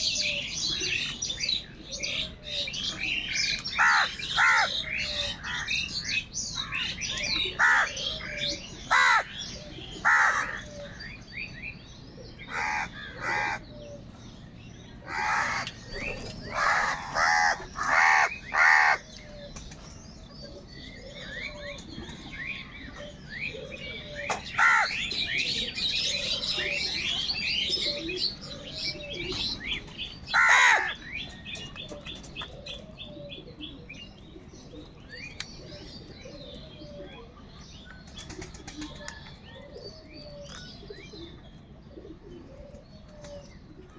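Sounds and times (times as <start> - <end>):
small birds chirping: 0.0 - 43.9
crows cawing: 3.7 - 5.7, 7.5 - 9.4, 10.0 - 11.0, 12.5 - 13.7, 15.0 - 19.2, 24.5 - 25.1, 30.3 - 31.1.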